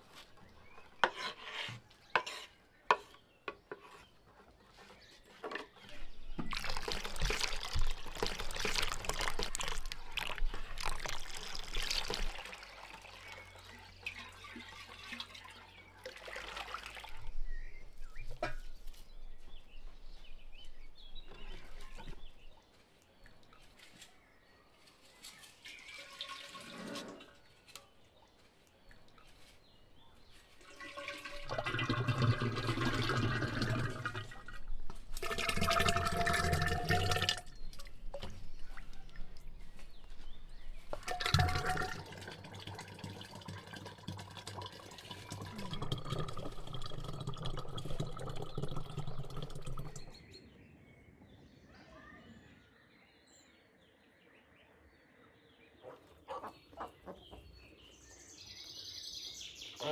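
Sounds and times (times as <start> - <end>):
liquid pouring into batter: 6.3 - 17.4, 30.6 - 38.4, 40.9 - 50.2.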